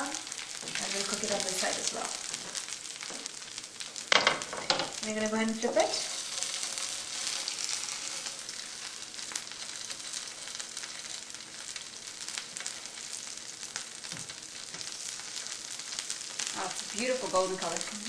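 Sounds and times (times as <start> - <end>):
patties sizzling in oil: 0.0 - 18.0.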